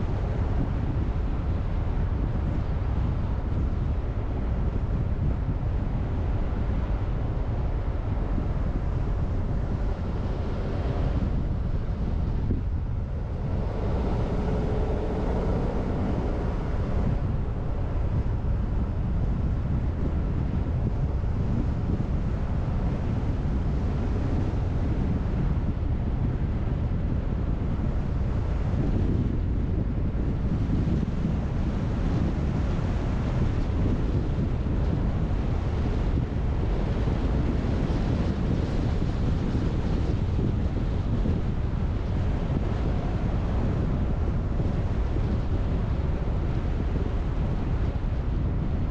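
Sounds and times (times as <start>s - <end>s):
car driving rumble: 0.0s - 48.9s
road and wind noise: 0.0s - 48.9s.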